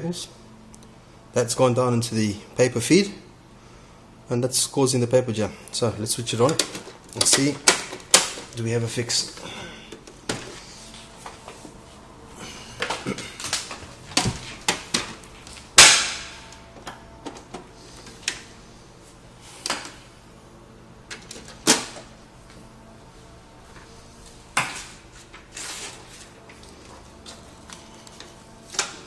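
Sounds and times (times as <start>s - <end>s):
printer mechanism clicking and clacking: 6.4s - 8.6s.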